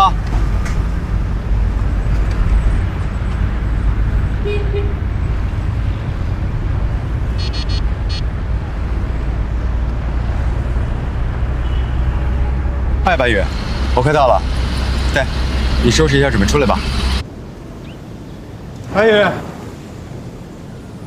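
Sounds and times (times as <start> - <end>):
car road rumble: 0.0 - 17.3
brief tone: 7.4 - 8.2
short high-pitched beeps: 7.4 - 8.2.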